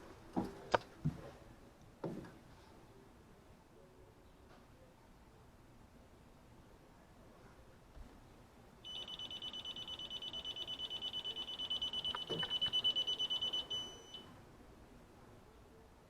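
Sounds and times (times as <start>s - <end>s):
leak detector rapid high beeping: 8.9s - 14.3s.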